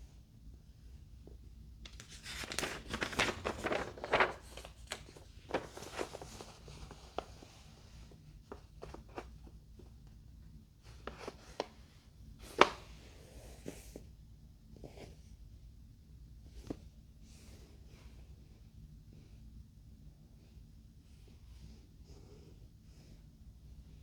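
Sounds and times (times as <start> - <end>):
packaging rustling and crinkling: 1.9 - 7.4.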